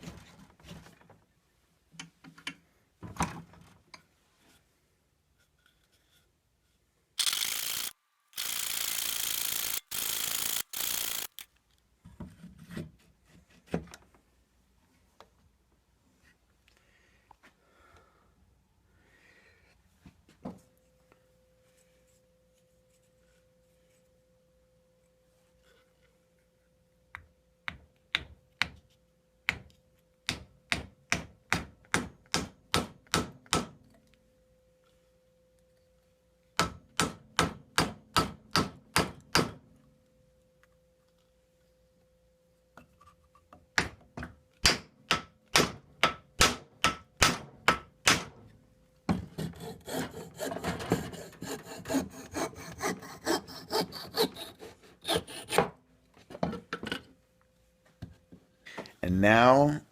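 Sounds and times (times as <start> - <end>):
hand tool scraping wooden dowel: 49.3 - 55.7.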